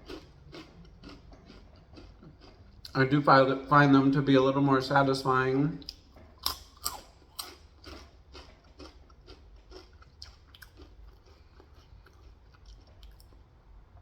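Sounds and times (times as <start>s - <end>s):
crunchy chips chewing: 0.0s - 3.4s, 5.8s - 13.7s.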